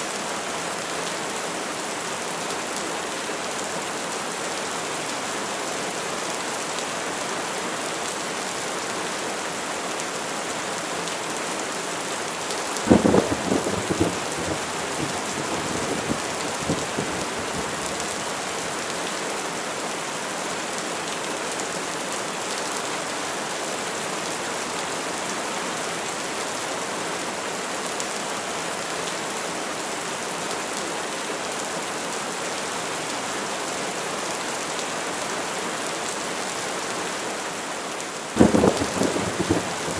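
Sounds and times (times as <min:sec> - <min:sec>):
steady rain falling: 0:00.0 - 0:39.9
thunder crack and rumble: 0:12.9 - 0:18.1, 0:38.4 - 0:39.9.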